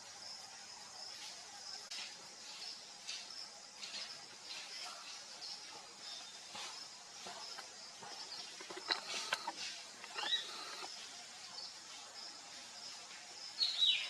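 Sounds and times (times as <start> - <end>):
steady high hiss: 0.0 - 14.0
wild birds chirping: 3.8 - 12.0.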